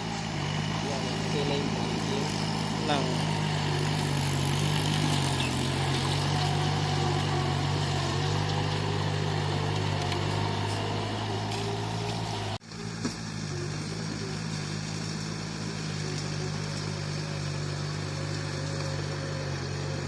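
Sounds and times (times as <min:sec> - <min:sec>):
bulldozer diesel engine running: 0:00.0 - 0:20.0.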